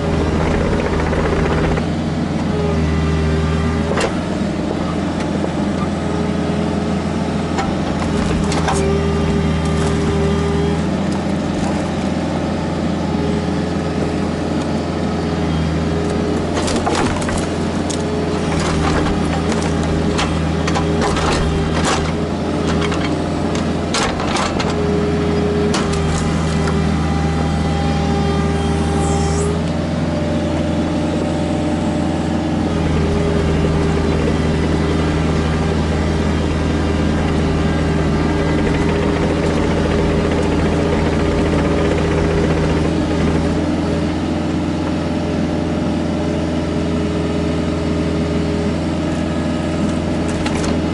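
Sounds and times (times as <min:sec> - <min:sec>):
excavator diesel engine running: 0:00.0 - 0:50.9
hydraulic whine: 0:23.9 - 0:44.3.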